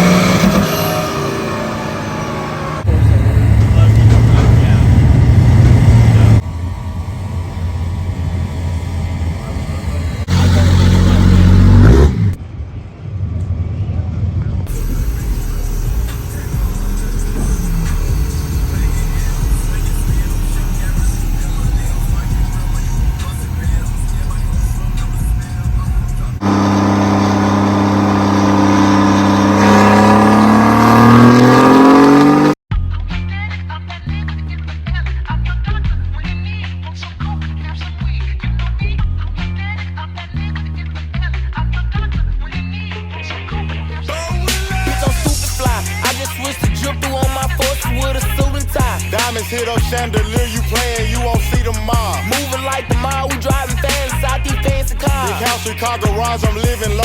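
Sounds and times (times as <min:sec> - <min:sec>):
diesel truck engine revving: 0:00.0 - 0:12.4, 0:14.7 - 0:32.6, 0:44.0 - 0:57.0
low rumble: 0:02.8 - 0:28.0.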